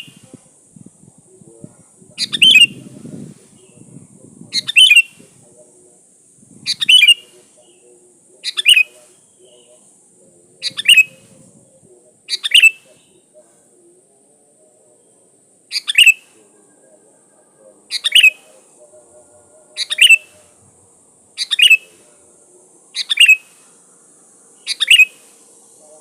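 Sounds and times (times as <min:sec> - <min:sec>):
faint steady hiss: 0:00.0 - 0:26.0
bird giving sharp calls: 0:02.2 - 0:02.8, 0:04.5 - 0:05.2, 0:06.6 - 0:07.8, 0:08.4 - 0:09.6, 0:10.6 - 0:11.3, 0:12.3 - 0:13.2, 0:15.7 - 0:16.4, 0:17.9 - 0:18.5, 0:19.8 - 0:20.6, 0:21.4 - 0:22.1, 0:22.9 - 0:23.7, 0:24.6 - 0:25.3.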